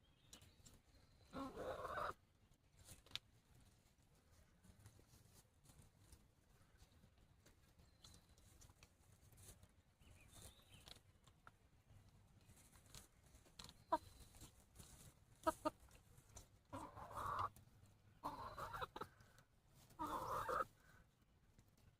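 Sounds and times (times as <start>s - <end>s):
chicken clucking: 0.3s - 3.0s, 10.1s - 21.2s.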